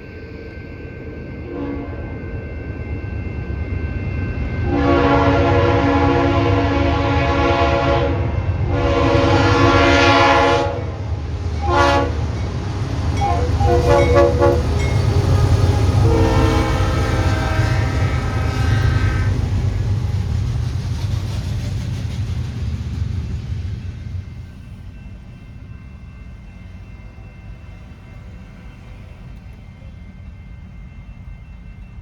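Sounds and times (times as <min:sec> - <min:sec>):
train rumbling: 0:00.0 - 0:32.0
locomotive air horn blasts: 0:04.6 - 0:10.9, 0:11.6 - 0:12.2, 0:13.2 - 0:19.4.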